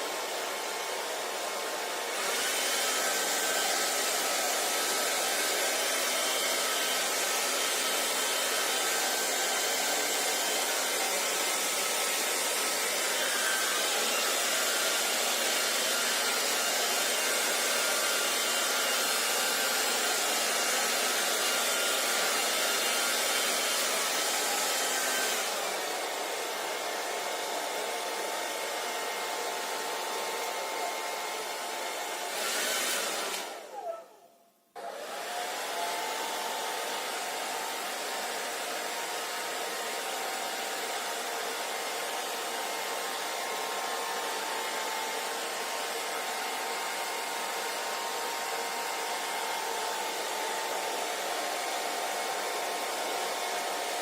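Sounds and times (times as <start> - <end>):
hair dryer blowing: 0.0 - 34.1, 34.8 - 54.0.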